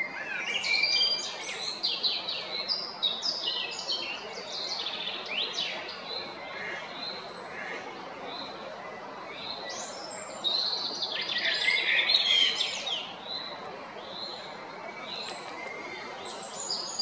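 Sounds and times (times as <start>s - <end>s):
blackbird singing: 9.3s - 14.4s.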